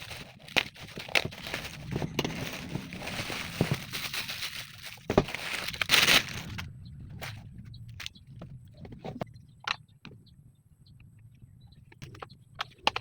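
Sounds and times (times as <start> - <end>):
tools clicking and knocking: 12.0 - 13.0.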